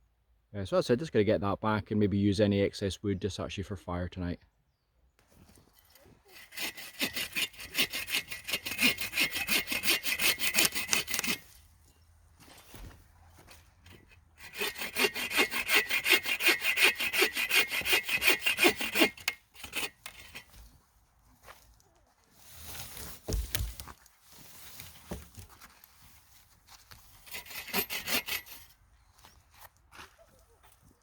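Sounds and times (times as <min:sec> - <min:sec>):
hand saw cutting wood: 0:06.0 - 0:11.7, 0:12.5 - 0:20.6, 0:26.9 - 0:28.8.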